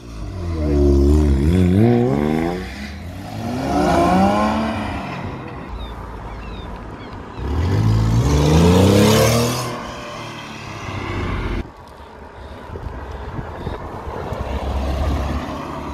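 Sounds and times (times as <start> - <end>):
car engine revving: 0.0 - 5.5, 7.4 - 11.6.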